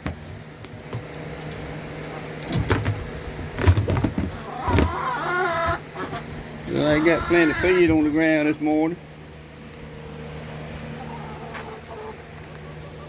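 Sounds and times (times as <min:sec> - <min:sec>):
electric fan humming: 0:00.0 - 0:13.0
knocks and rustles: 0:02.4 - 0:05.0.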